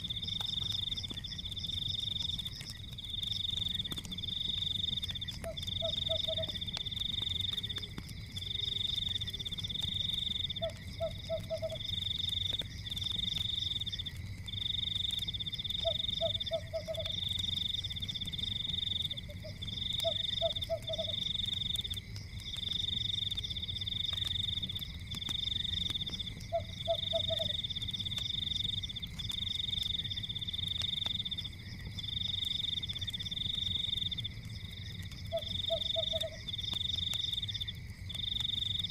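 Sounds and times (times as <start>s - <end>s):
faint crackles: 0.0s - 38.9s
frogs trilling: 0.0s - 38.9s
frog croaking: 5.4s - 6.6s, 10.5s - 11.9s, 15.8s - 17.2s, 19.0s - 21.2s, 26.4s - 27.6s, 35.2s - 36.6s.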